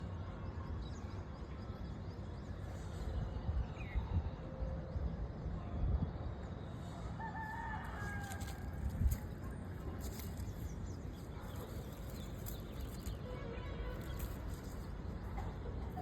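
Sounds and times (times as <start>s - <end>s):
rooster crowing: 7.2s - 8.8s.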